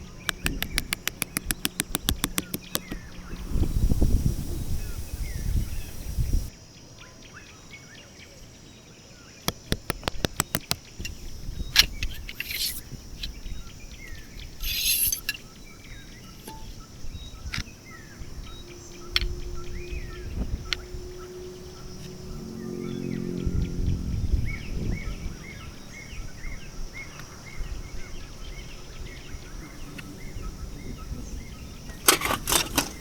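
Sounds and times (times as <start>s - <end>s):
low wind rumble: 0.0s - 6.5s, 9.5s - 14.7s, 15.3s - 33.0s
small birds chirping: 0.0s - 33.0s
sharp clicks: 0.2s - 3.4s, 9.4s - 11.2s
camping gear rustling: 9.6s - 13.5s, 31.8s - 33.0s.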